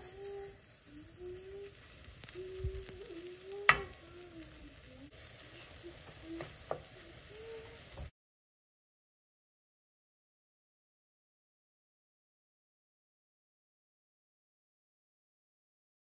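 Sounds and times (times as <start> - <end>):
batter sizzling in hot oil: 0.0 - 8.1.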